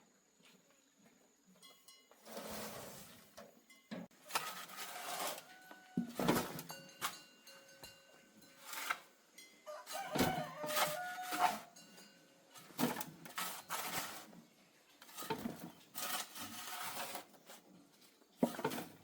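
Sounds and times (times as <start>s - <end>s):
short noisy scrapes or knocks: 4.3s - 6.6s
rooster crowing: 5.0s - 6.2s, 9.6s - 11.8s.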